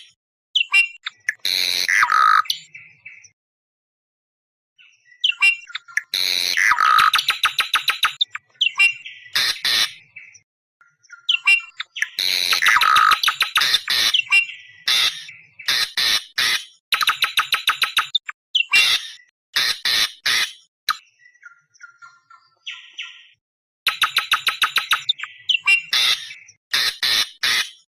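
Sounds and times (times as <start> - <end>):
bird harsh screaming calls: 0.0 - 2.7, 4.8 - 10.3, 11.2 - 20.7, 24.0 - 27.9.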